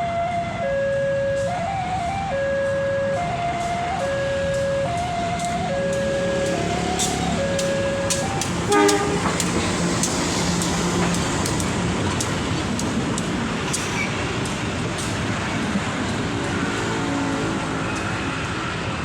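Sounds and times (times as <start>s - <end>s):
horn blast: 0.0s - 10.3s
level crossing warning siren: 0.0s - 13.6s
train passing with rumble: 0.0s - 19.0s
train wheels clacking: 3.6s - 18.8s.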